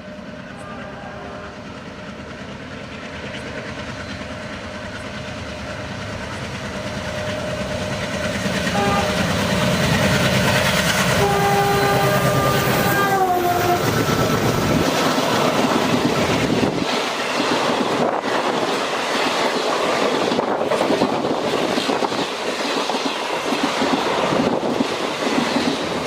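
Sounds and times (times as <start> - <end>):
train horn: 0.0 - 1.7, 8.7 - 9.7, 11.1 - 14.2
diesel locomotive rumble: 0.0 - 26.0.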